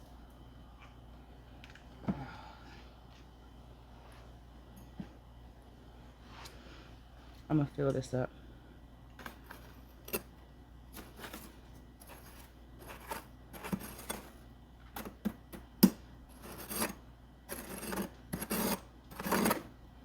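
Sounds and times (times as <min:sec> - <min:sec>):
crunchy frost scraping: 0:10.9 - 0:14.4, 0:16.3 - 0:19.7.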